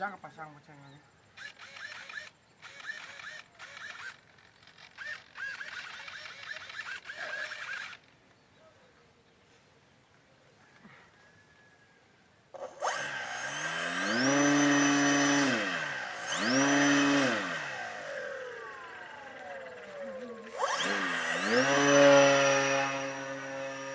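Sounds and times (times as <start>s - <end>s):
model airplane motor revving: 1.4s - 8.2s, 12.6s - 23.9s.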